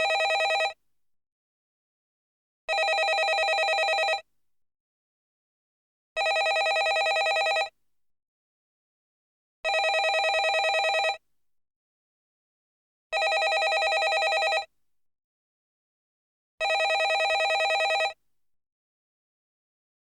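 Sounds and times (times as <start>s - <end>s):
telephone ringing: 0.0s - 0.8s, 2.7s - 4.2s, 6.2s - 7.7s, 9.7s - 11.2s, 13.2s - 14.7s, 16.6s - 18.2s.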